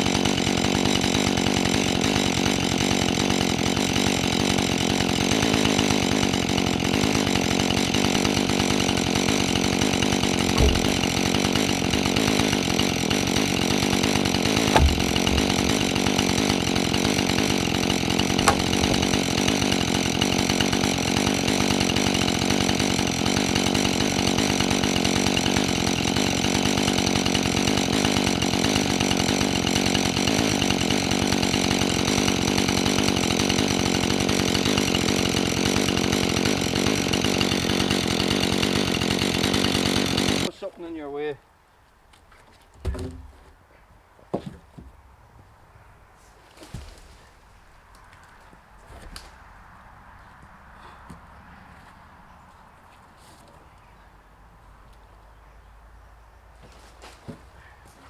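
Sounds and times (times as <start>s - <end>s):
chainsaw running: 0.0s - 40.5s
short knocks: 10.3s - 12.4s, 14.4s - 17.0s, 17.6s - 19.5s.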